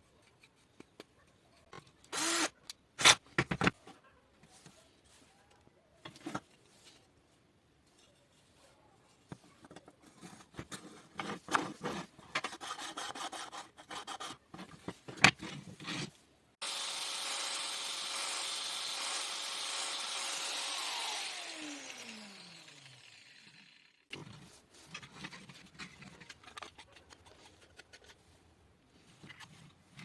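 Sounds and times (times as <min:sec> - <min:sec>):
disc sander motor whining: 0:16.6 - 0:23.8.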